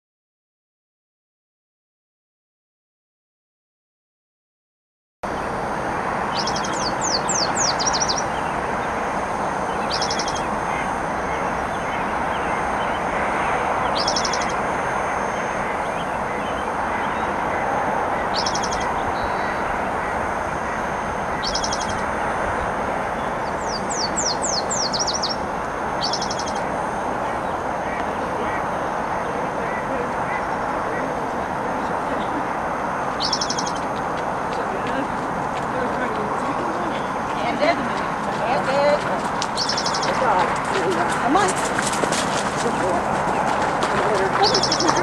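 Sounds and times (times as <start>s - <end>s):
bird buzzy trill: 5.3s - 34.2s, 39.5s - 40.2s, 44.4s - 45.0s
steady rushing noise: 5.3s - 45.0s.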